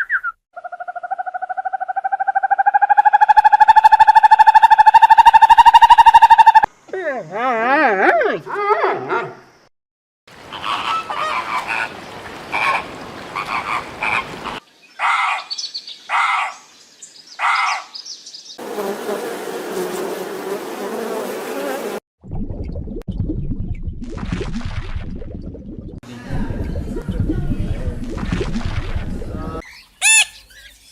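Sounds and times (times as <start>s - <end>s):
low rumble: 22.2s - 29.6s.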